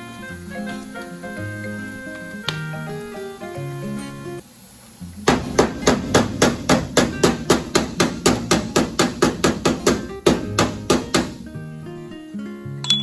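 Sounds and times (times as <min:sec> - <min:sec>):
quiet background music: 0:00.0 - 0:13.0
hammer striking sheet metal: 0:05.3 - 0:11.5.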